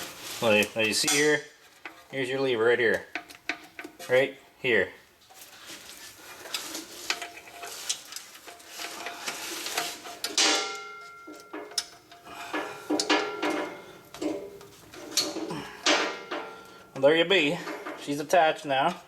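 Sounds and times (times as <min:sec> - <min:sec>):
metal clanks: 0:00.9 - 0:04.3, 0:06.4 - 0:19.0
metal brake parts clicking and rattling: 0:06.4 - 0:18.2.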